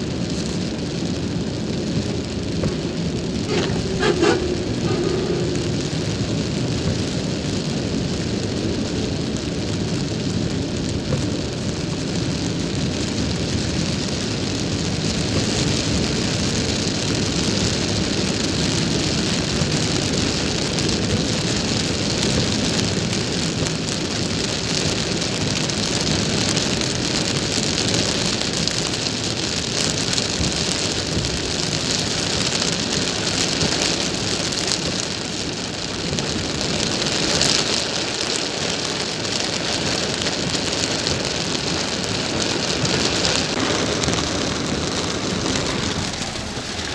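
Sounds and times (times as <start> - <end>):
rain hissing on a car: 0.0 - 46.9
car driving rumble: 2.6 - 7.2, 42.8 - 46.9.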